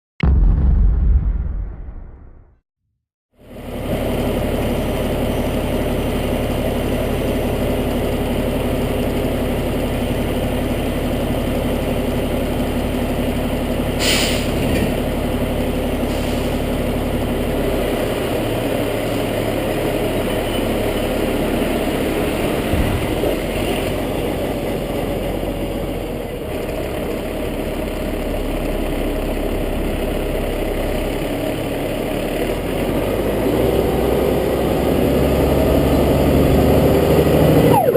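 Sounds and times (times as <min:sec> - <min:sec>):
fire truck diesel engine running: 0:03.5 - 0:37.9
short hiss of air: 0:14.0 - 0:14.6.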